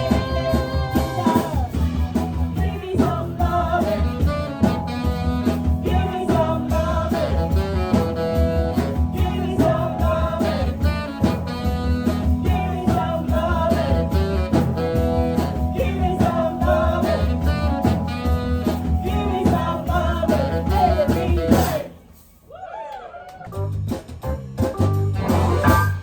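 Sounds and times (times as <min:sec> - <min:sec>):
blues band playing live: 0:00.0 - 0:21.9, 0:23.5 - 0:26.0.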